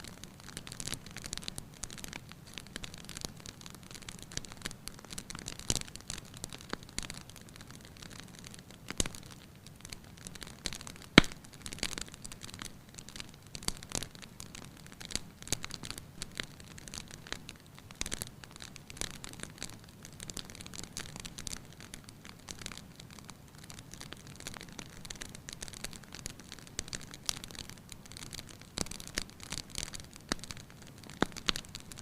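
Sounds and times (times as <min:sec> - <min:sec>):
wood fire crackling: 0:00.0 - 0:32.0
loud sharp pop: 0:11.2 - 0:11.4.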